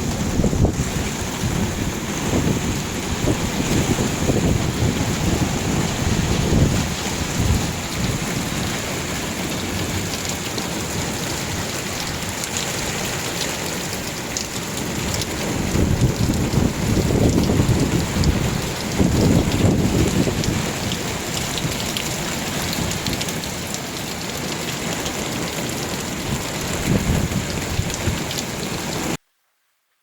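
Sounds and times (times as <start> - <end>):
thunder rolling: 0.0 - 9.0, 15.4 - 20.9
heavy rain hissing: 0.0 - 29.2.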